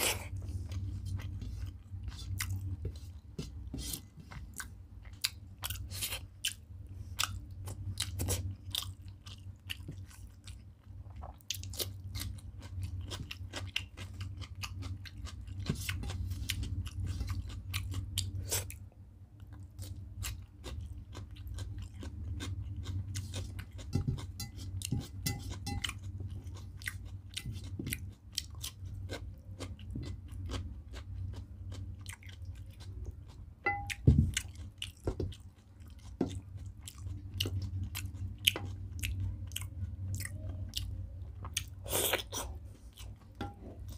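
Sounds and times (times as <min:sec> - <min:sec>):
wet chewing and lip-smacking: 0:19.4 - 0:43.9
steel bowl clinking on plate: 0:33.6 - 0:34.0.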